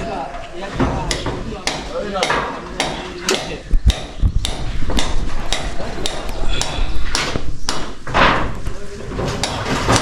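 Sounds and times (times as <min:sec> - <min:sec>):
hammering: 0:00.6 - 0:10.0.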